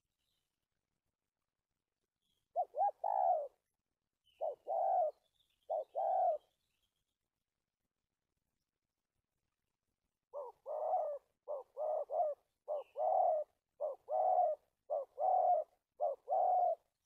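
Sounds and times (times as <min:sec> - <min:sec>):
dove cooing: 0:02.5 - 0:03.7, 0:04.3 - 0:06.6, 0:10.3 - 0:17.0.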